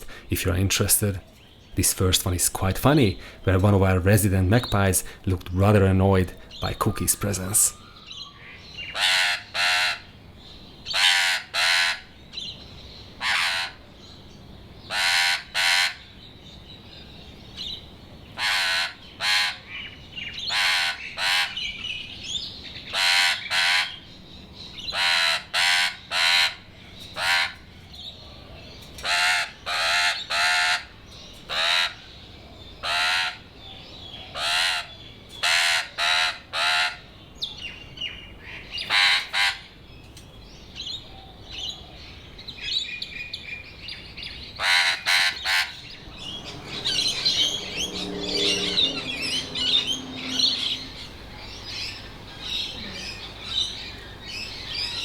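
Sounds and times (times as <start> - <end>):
magpie short calls: 8.9 - 10.1, 10.9 - 12.1, 14.9 - 16.0, 18.4 - 19.8, 22.9 - 24.0, 32.8 - 33.4.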